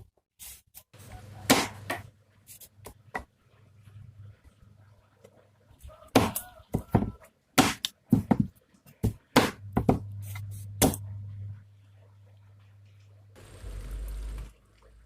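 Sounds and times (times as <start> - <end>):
low steady hum: 9.4 - 15.0.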